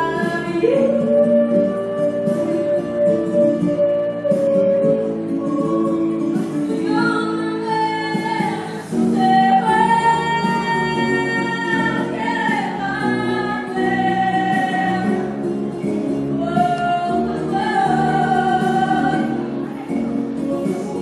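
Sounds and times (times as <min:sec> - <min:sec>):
person singing long notes: 0:00.0 - 0:15.3
instrumental accompaniment: 0:00.0 - 0:21.0.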